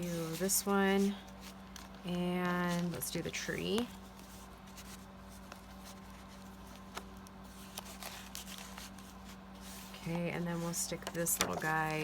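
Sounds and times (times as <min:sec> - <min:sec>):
low electrical hum: 0:00.0 - 0:12.0
paper rustling: 0:00.0 - 0:12.0.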